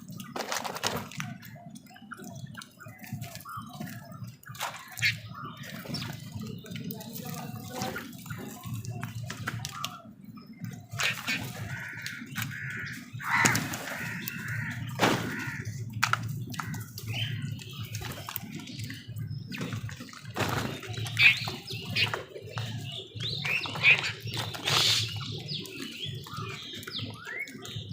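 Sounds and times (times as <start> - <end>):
watery splashy noises: 0.0 - 27.9
crows calling harshly: 11.0 - 15.9.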